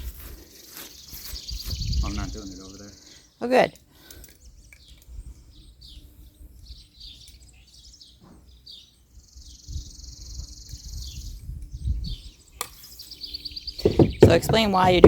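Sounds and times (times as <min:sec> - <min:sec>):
songbirds chirping: 0:00.0 - 0:15.0
high bird trill: 0:00.6 - 0:03.8.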